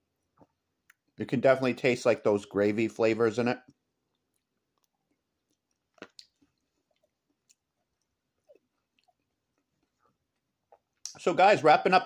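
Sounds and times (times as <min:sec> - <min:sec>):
man chewing food: 0:00.0 - 0:01.2, 0:03.7 - 0:11.1.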